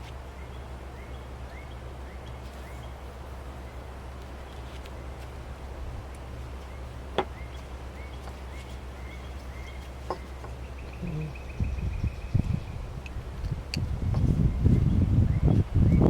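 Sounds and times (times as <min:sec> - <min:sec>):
steady low hum: 0:00.0 - 0:16.0
faint high bird chirps: 0:06.6 - 0:12.9.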